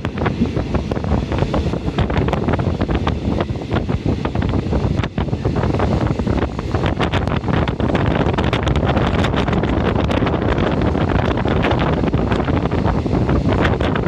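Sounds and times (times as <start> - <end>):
train running rumble: 0.0 - 14.0
wind buffeting microphone: 0.0 - 14.0.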